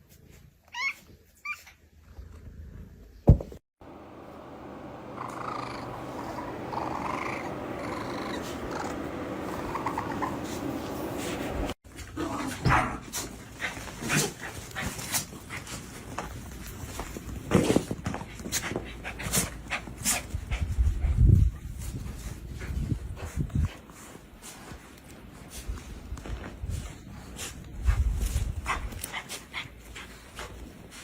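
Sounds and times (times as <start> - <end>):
cat purring: 5.1 - 11.8.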